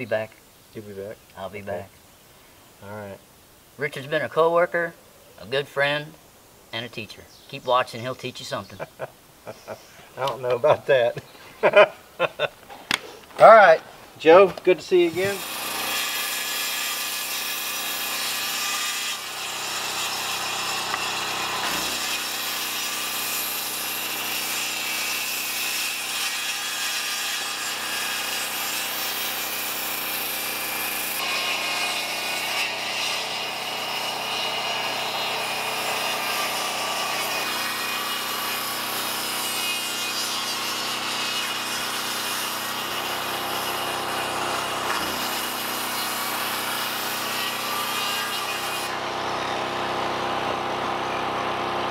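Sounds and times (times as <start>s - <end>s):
saw cutting through wood: 14.3s - 51.9s.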